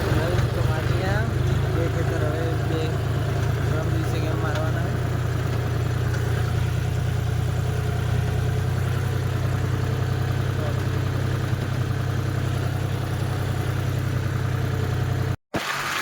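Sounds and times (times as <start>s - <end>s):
tractor engine running: 0.0s - 15.4s.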